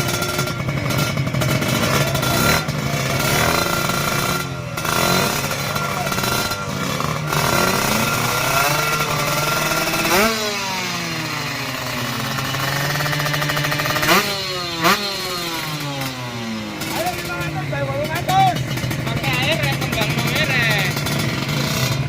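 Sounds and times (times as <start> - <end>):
motorcycle engine idling and revving: 0.0 - 22.0.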